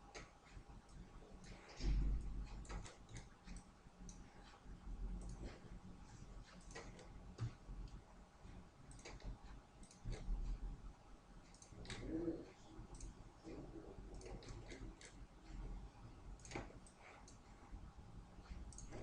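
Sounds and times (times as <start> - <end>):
keyboard clicks: 0.0 - 4.2, 6.5 - 8.0, 8.9 - 10.3, 11.5 - 13.2, 14.1 - 15.6, 16.4 - 17.4, 18.6 - 19.0
computer mouse clicks: 0.1 - 4.6, 5.2 - 5.7, 6.5 - 8.0, 8.9 - 10.6, 11.4 - 15.7, 16.3 - 17.6, 18.4 - 19.0.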